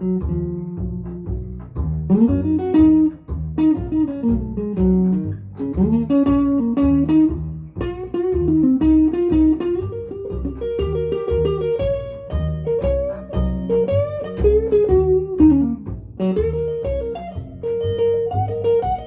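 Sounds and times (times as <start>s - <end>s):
blues guitar with sliding notes: 0.0s - 19.0s
pulsing low bass: 0.0s - 19.0s.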